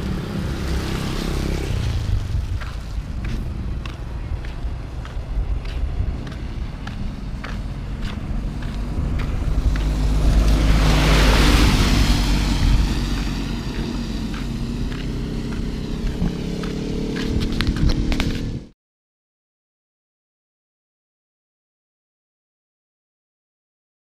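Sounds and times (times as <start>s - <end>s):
vehicle passing by: 0.0s - 18.7s
footsteps: 2.2s - 10.9s, 12.3s - 18.6s.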